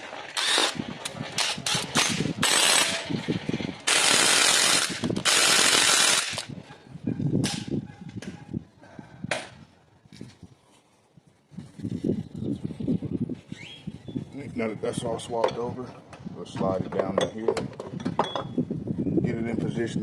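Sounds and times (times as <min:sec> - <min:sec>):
socket wrench bursts: 0:00.3 - 0:00.8, 0:01.4 - 0:03.1, 0:03.9 - 0:06.5.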